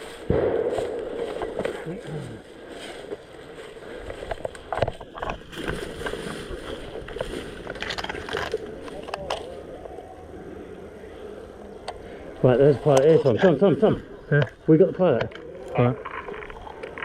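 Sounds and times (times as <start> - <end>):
rustling and scuffing: 0.0 - 9.6.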